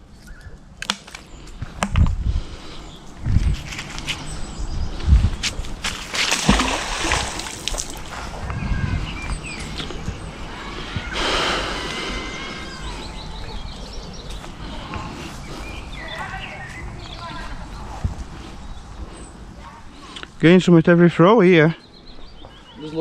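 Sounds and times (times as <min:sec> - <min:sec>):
water splashing and sloshing: 0:05.4 - 0:08.4
loud splashes: 0:06.0 - 0:08.1.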